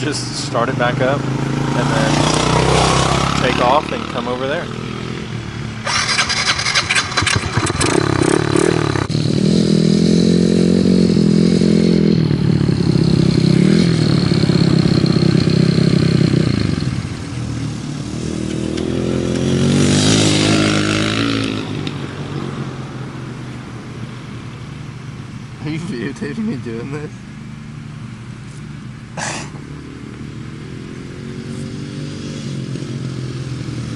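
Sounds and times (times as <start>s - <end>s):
dirt bike engine revving: 0.5s - 17.3s, 18.0s - 22.0s
dirt bike engine starting: 5.8s - 16.8s.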